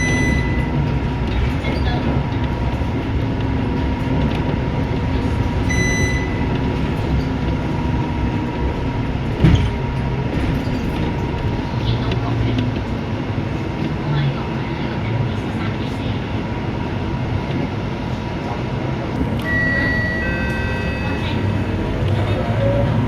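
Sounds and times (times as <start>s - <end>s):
short electronic beep: 0.0s - 0.7s, 5.7s - 6.4s, 19.4s - 21.7s
bus diesel engine: 0.0s - 23.0s
road noise: 0.0s - 23.0s.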